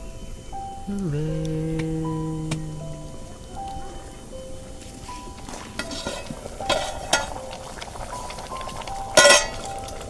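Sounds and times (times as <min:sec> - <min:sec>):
faint background music: 0:00.0 - 0:10.0
metal utensils clinking on dishes: 0:05.1 - 0:10.0.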